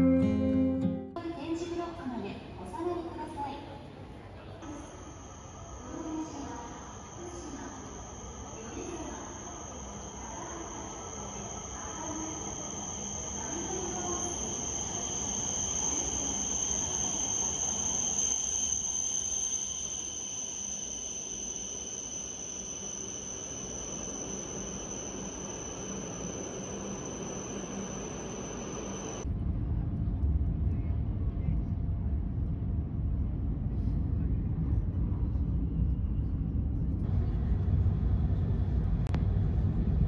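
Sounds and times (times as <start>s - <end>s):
train rumble: 1.8s - 40.0s
high-pitched ringing tone: 4.6s - 29.3s.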